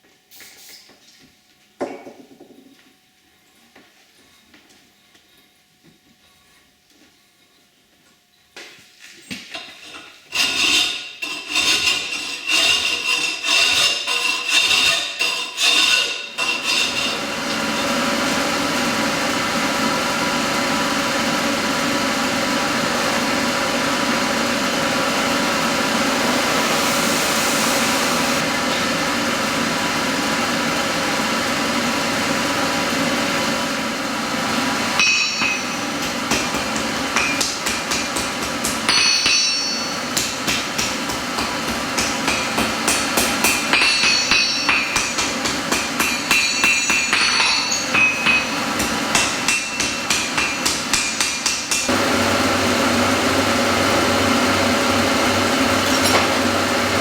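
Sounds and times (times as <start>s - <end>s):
steady machine noise: 16.4s - 57.0s
hammer striking steel on anvil: 35.0s - 52.0s, 55.8s - 56.5s.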